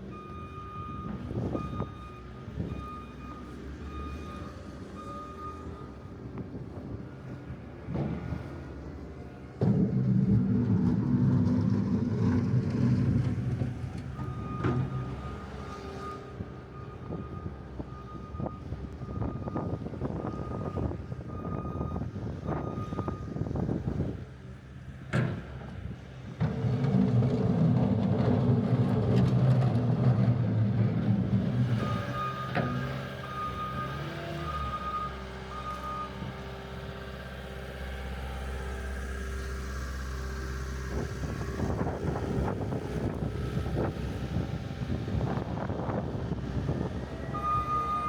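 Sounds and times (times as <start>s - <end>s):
reversing alarm beeps: 0.1s - 6.1s, 14.2s - 23.5s, 31.7s - 36.4s, 47.2s - 48.0s
large vehicle engine running: 5.8s - 48.0s.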